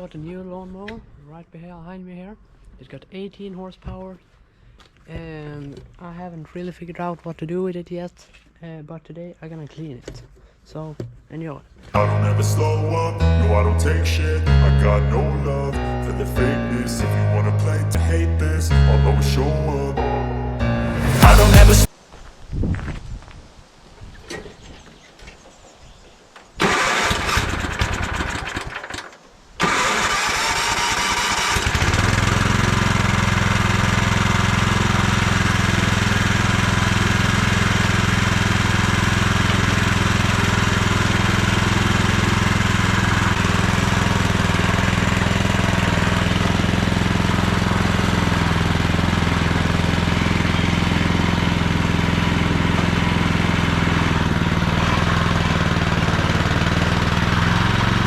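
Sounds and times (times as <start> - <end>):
small petrol engine running: 26.6 - 29.0, 29.6 - 58.0.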